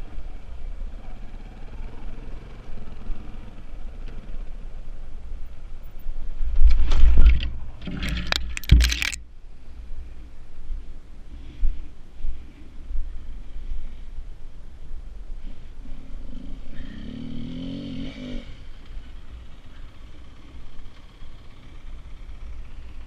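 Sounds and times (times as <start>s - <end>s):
loud clattering and scraping: 6.6s - 9.2s
dirt bike engine running: 15.8s - 23.0s.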